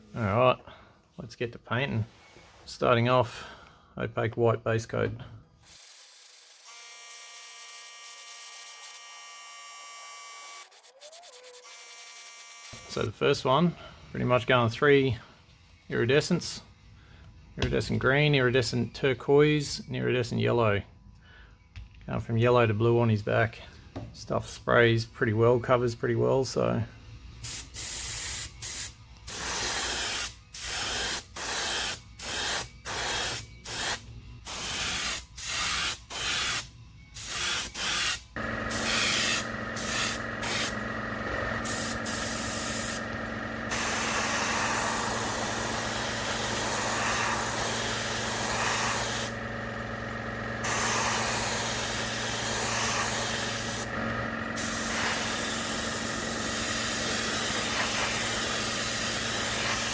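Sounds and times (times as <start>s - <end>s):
airbrush spraying hiss: 37.2s - 40.8s, 41.6s - 43.1s, 43.7s - 49.4s, 50.6s - 53.9s, 54.6s - 59.9s
steady motor hum: 38.3s - 59.9s.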